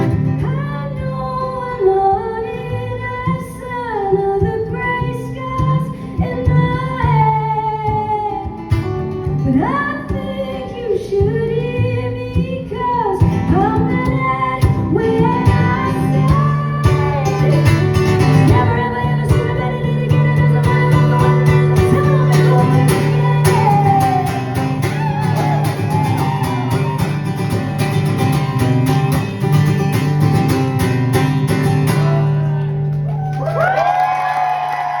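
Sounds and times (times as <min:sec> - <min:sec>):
woman singing: 0:00.0 - 0:27.2.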